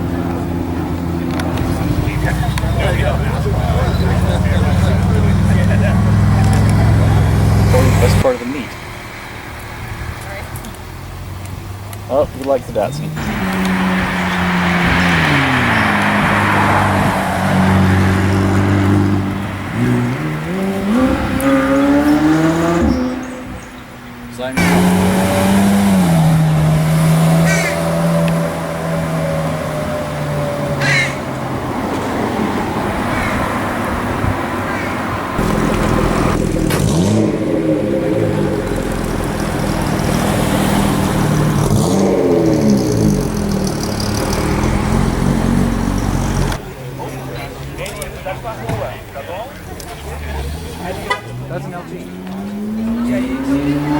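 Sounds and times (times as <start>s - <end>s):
car engine driving past: 0.0s - 11.2s, 12.8s - 23.8s
car engine accelerating: 0.0s - 53.9s.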